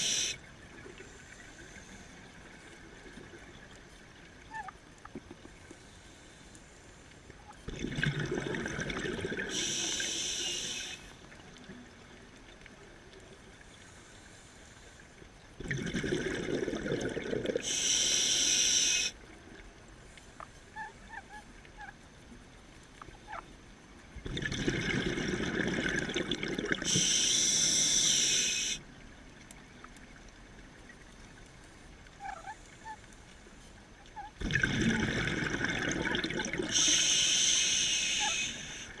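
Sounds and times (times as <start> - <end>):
diver breathing through regulator: 0.0 - 0.4, 9.5 - 11.0, 17.6 - 19.2, 26.8 - 28.8, 36.6 - 39.0
rushing bubbles: 7.7 - 9.6, 15.6 - 17.7, 24.2 - 27.0, 34.4 - 36.9.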